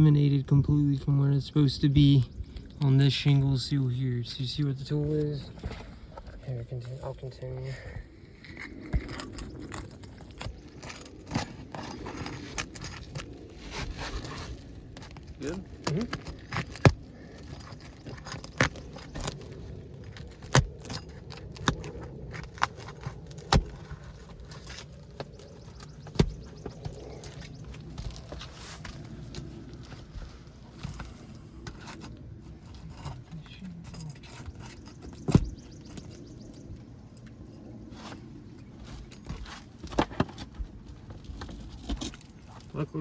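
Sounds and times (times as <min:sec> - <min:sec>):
scraping: 0:04.0 - 0:43.0
hand tool prying roof shingles: 0:08.8 - 0:29.1, 0:34.3 - 0:36.3.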